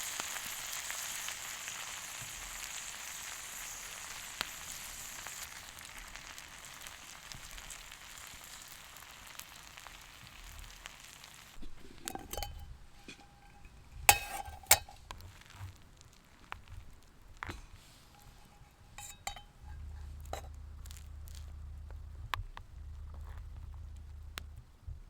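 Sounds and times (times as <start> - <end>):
food sizzling in a hot pan: 0.0 - 11.6
cookware clinking: 11.6 - 15.0, 17.5 - 20.5.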